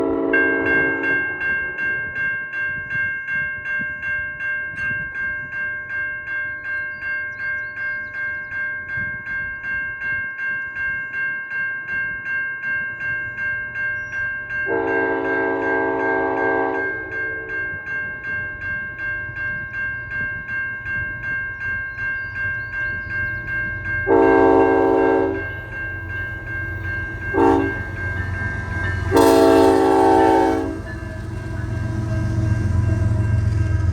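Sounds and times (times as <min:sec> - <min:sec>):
locomotive horn blasts: 0:00.0 - 0:01.8, 0:14.7 - 0:17.7, 0:24.0 - 0:25.5, 0:27.3 - 0:31.6
railway crossing bell ringing: 0:00.0 - 0:33.9.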